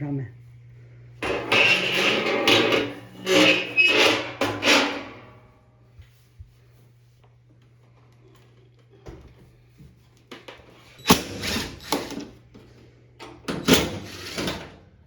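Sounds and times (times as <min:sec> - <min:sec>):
faint steady hum: 0:00.0 - 0:03.2
rubbing and scraping rubber seal: 0:01.2 - 0:05.3.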